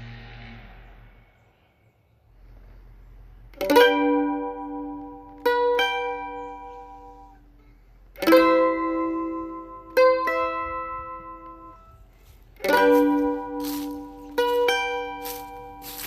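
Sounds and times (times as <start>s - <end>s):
mandolin plucked notes: 3.4s - 16.0s
mandolin strummed chords: 3.5s - 16.0s.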